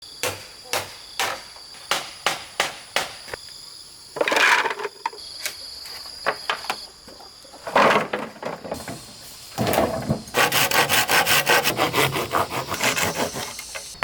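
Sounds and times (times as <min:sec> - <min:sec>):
rasping scrape: 0:10.3 - 0:14.0
high-pitched insect drone: 0:11.3 - 0:14.0.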